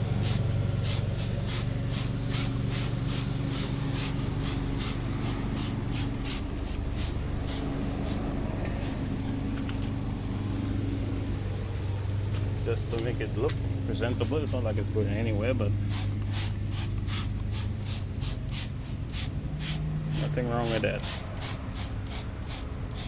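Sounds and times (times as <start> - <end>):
spray bottle squirts hissing: 0.0 - 9.0, 15.9 - 23.0
steady low hum: 0.0 - 23.0.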